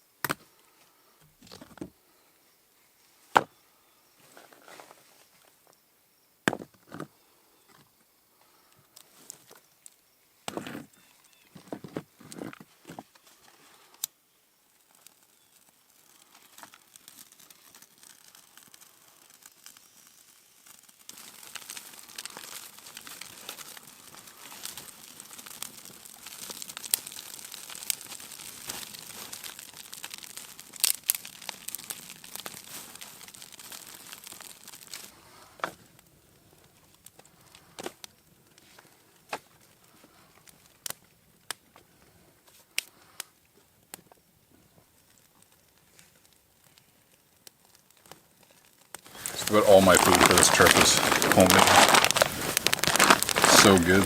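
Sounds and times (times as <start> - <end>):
bags crinkling and rustling: 21.1 - 35.9, 49.0 - 54.0.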